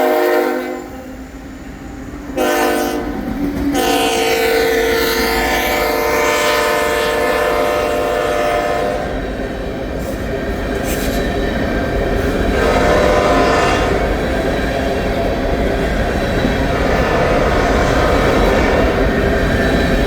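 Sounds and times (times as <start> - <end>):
locomotive horn: 0.0 - 1.0, 2.4 - 9.2, 12.5 - 14.2
train rolling past: 0.0 - 20.0.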